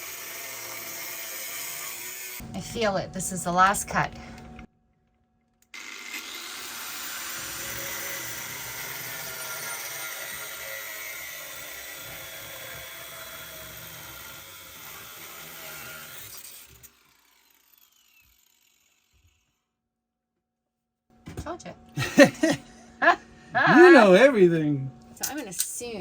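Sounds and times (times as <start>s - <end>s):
high-pitched power tool cutting: 0.0s - 2.9s, 5.7s - 19.4s.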